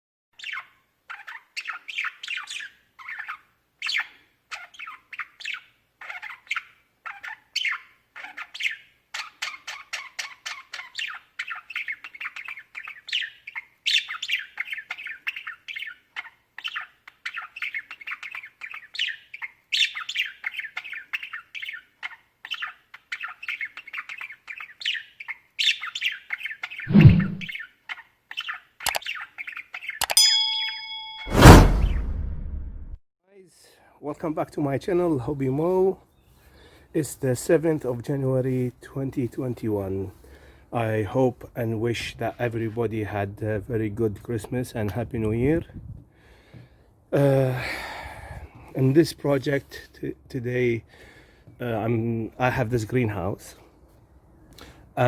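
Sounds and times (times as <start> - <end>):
budgerigars chattering: 0.4 - 26.8
loud thud: 26.9 - 27.5, 31.3 - 33.0.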